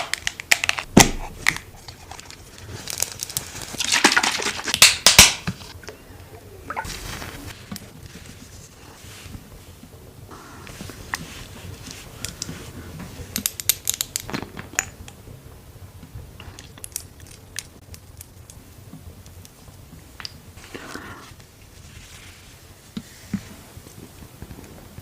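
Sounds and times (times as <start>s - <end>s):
soft rustle: 6.8s - 13.4s, 18.8s - 25.0s.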